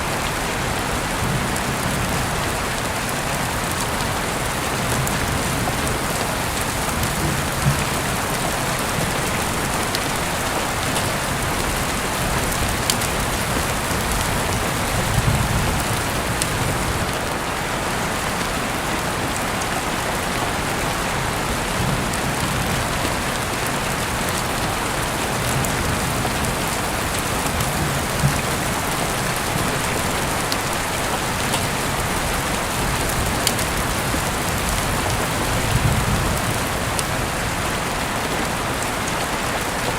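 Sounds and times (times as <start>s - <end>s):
heavy rain falling: 0.0s - 39.9s
rain drops hitting surfaces: 0.0s - 39.9s.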